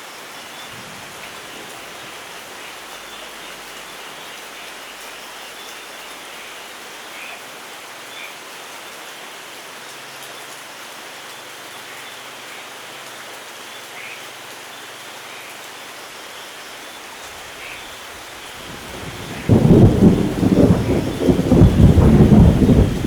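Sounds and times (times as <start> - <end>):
raindrops: 0.0 - 23.0
steady rain: 0.0 - 23.0
rolling thunder: 18.6 - 23.0.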